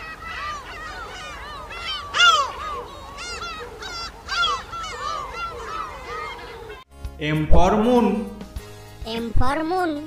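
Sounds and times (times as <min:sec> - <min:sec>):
birds squawking: 0:00.0 - 0:06.9.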